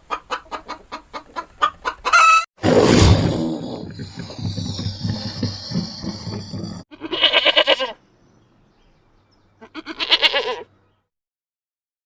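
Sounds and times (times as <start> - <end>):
goat bleating: 6.9 - 8.0, 9.6 - 10.7.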